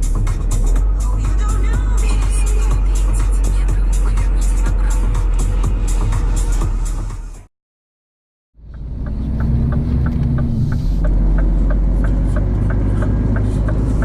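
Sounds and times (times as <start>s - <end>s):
background music: 0.0s - 7.5s
steady light ticking: 8.6s - 14.0s
truck engine rumble in cab: 8.6s - 14.0s.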